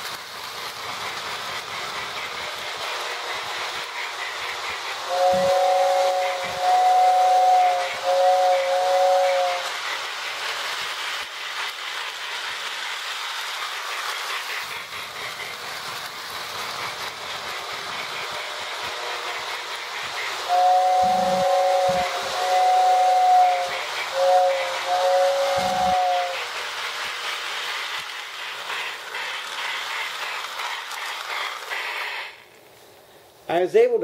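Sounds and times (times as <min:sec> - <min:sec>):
electronic steam chuffing and hiss: 0:00.0 - 0:33.4
toy train steam whistle: 0:02.9 - 0:10.0, 0:18.7 - 0:26.7, 0:30.0 - 0:32.5.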